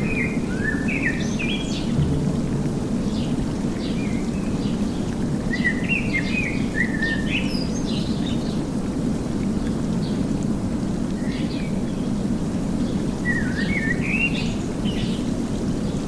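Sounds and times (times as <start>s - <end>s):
low rumbling noise: 1.9s - 6.4s.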